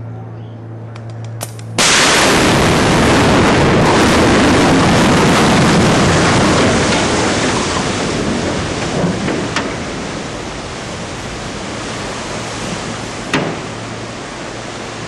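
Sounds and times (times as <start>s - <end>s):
short crack: 0.9s - 2.1s
demolition blast rumbling roar: 1.8s - 15.0s.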